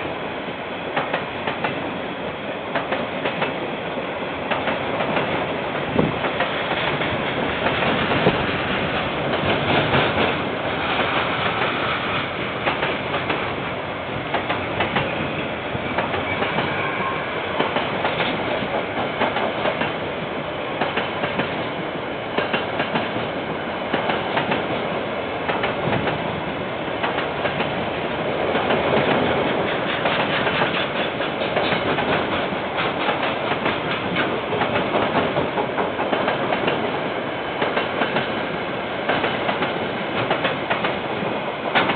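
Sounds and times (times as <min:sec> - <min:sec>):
train wagons clattering: 0:14.3 - 0:20.0, 0:28.5 - 0:37.0.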